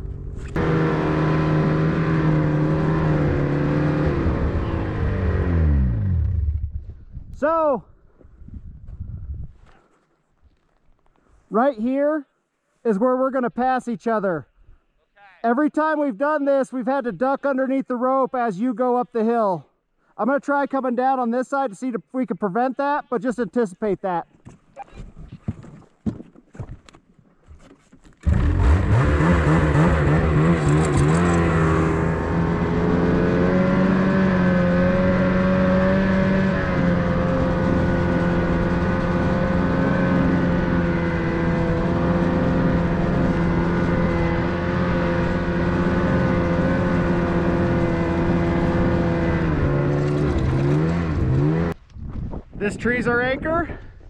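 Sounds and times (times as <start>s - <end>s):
gasoline engine revving high: 0.0s - 6.6s, 28.2s - 51.8s.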